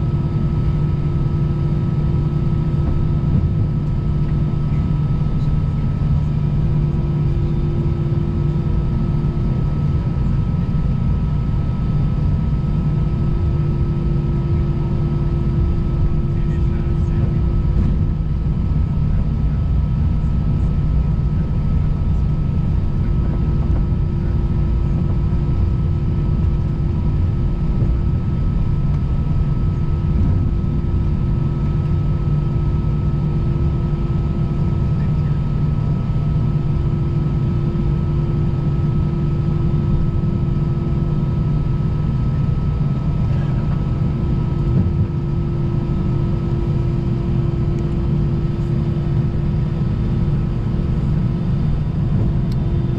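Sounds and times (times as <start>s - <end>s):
airplane cabin engine rumble: 0.0s - 52.9s
engine whining hums: 36.2s - 52.9s.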